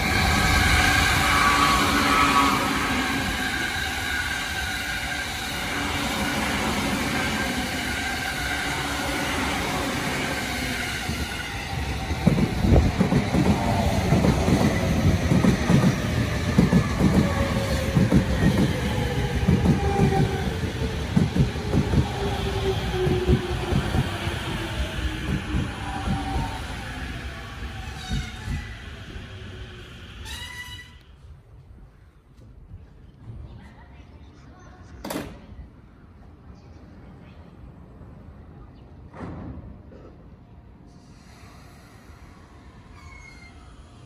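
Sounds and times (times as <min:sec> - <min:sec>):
train running past: 0:00.0 - 0:31.4.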